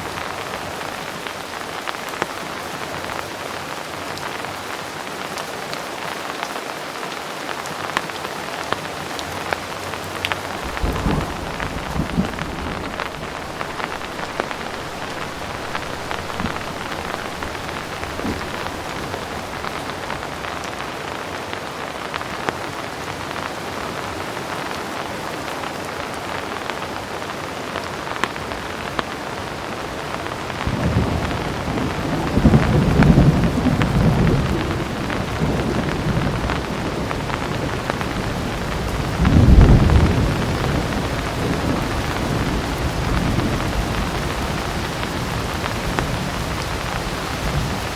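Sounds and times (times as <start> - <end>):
heavy rain falling: 0.0 - 47.9
thunder rumbling: 10.1 - 20.9, 30.6 - 47.9.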